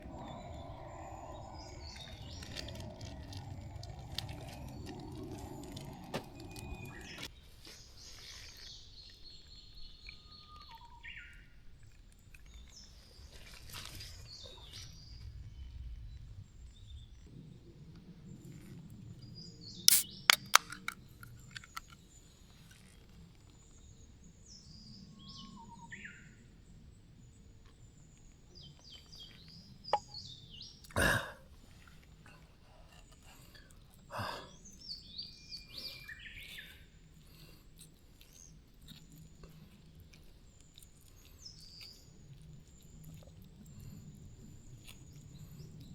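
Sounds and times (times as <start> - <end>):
sharp clicks or knocks: 19.9 - 21.0.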